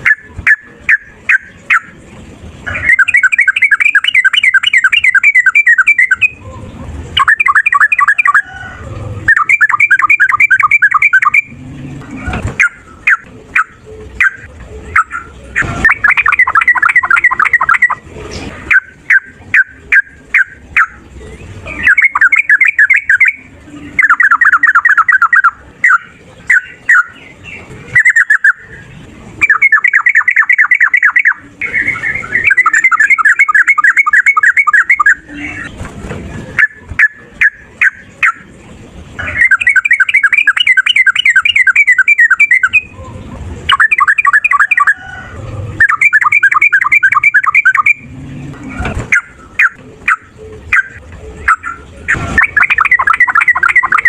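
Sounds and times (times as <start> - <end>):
bird singing rattling runs: 7.1 - 18.0, 18.6 - 54.0
sharp bird call notes: 12.5 - 18.0, 49.0 - 54.0.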